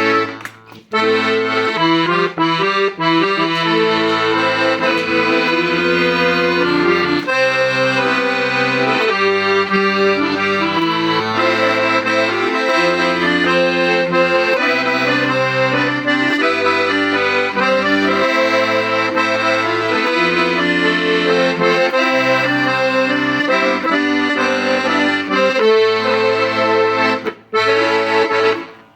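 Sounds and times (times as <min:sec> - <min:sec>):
accordion melody with bass: 0:00.0 - 0:28.9.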